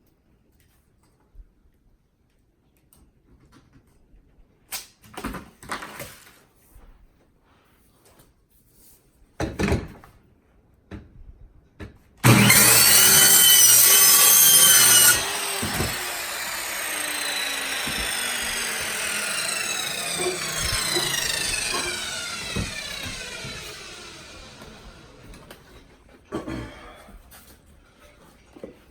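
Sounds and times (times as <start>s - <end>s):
saw motor winding down: 12.2s - 25.6s
power saw cutting: 12.2s - 25.7s.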